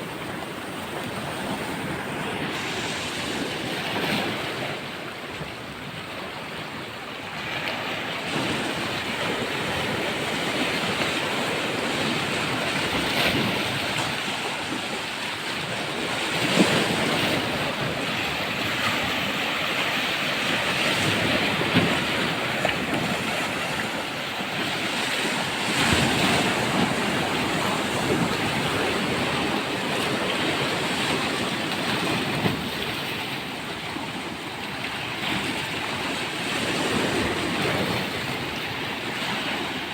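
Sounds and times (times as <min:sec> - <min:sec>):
sea waves breaking on shore: 0:00.0 - 0:39.9
wind on microphone: 0:08.3 - 0:39.9.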